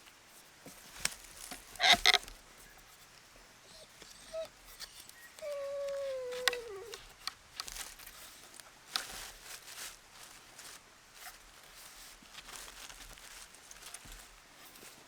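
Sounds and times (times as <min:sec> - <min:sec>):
light rustling: 0:00.4 - 0:15.0
dog whining: 0:03.6 - 0:07.1.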